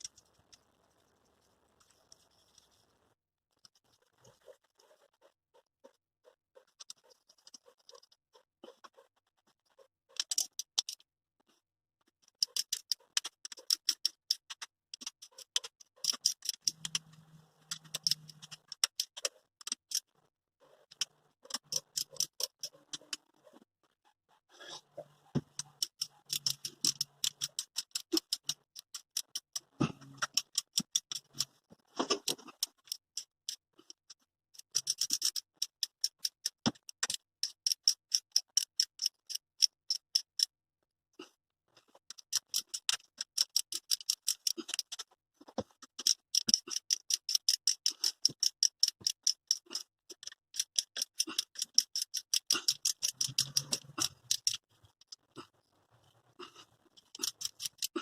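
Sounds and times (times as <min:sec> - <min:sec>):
ratchet wrench clicking: 0:25.6 - 0:31.5, 0:34.6 - 0:40.5, 0:42.1 - 0:44.9, 0:46.0 - 0:54.6, 0:57.1 - 0:58.0.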